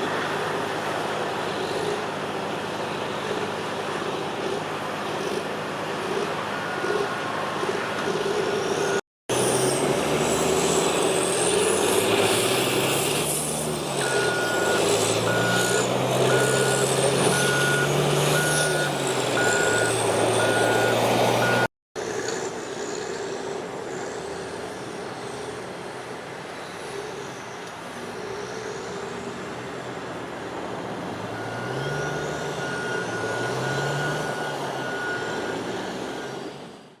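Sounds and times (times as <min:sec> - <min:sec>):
diesel engine revving: 0:00.0 - 0:37.0
back-up alarm beeping: 0:14.0 - 0:21.7, 0:31.4 - 0:36.4.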